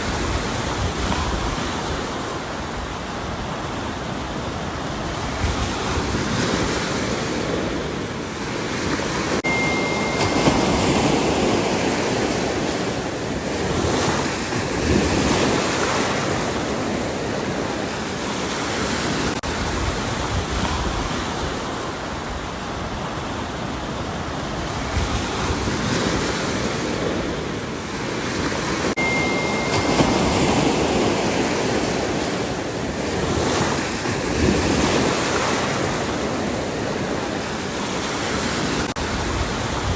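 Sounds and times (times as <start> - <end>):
ocean waves breaking on shore: 0.0 - 39.9
thin high tone: 9.4 - 13.0, 29.0 - 31.9.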